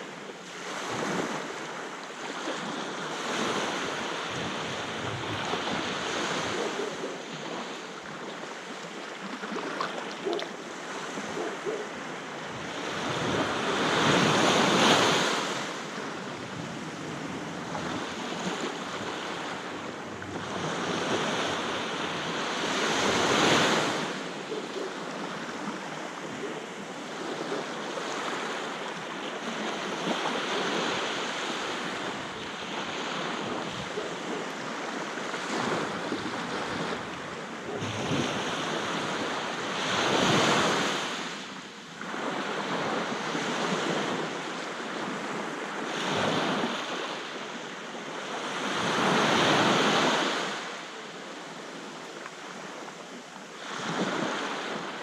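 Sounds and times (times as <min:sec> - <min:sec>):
sea waves breaking on beach: 0:00.0 - 0:55.0
wind on microphone: 0:02.6 - 0:07.7, 0:11.1 - 0:24.4, 0:29.5 - 0:41.0.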